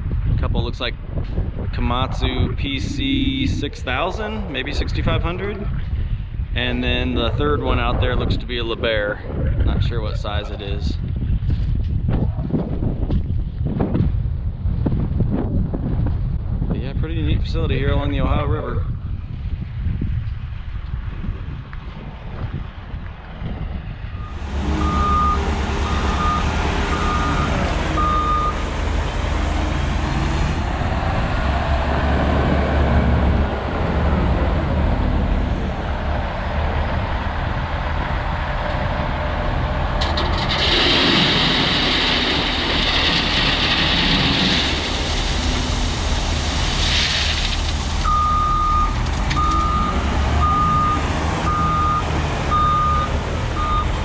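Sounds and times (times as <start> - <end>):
diesel truck engine running: 24.1 - 54.0
reversing alarm beeping: 24.2 - 28.7, 48.0 - 54.0.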